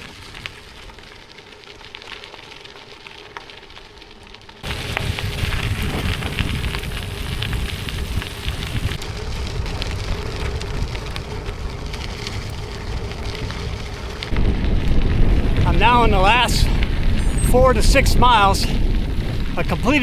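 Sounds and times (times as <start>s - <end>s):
bike tyres crunching on gravel: 0.0s - 20.0s
wind rumble on microphone: 4.6s - 20.0s.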